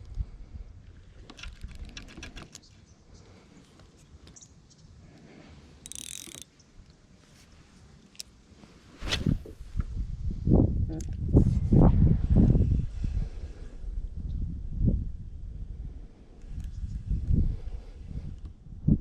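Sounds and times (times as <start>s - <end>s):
fishing reel clicking: 5.8s - 6.5s
short hiss: 9.0s - 9.7s.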